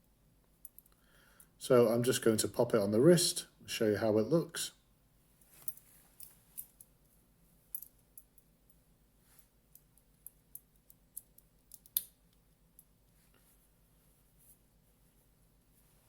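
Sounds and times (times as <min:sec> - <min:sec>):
watch bracelet clicking and rattling: 0:07.7 - 0:08.4, 0:09.7 - 0:12.2.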